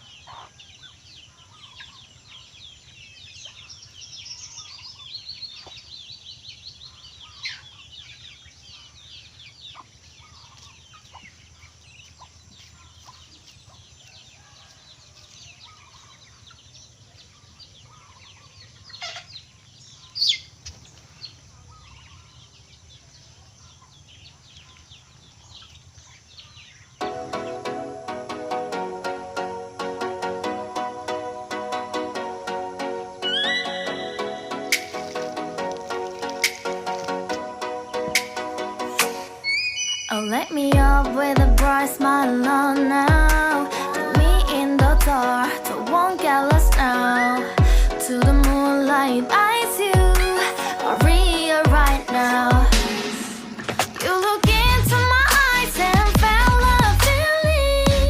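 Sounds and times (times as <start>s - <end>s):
poultry chirping and clucking: 0.0s - 27.6s
background music: 27.0s - 58.0s.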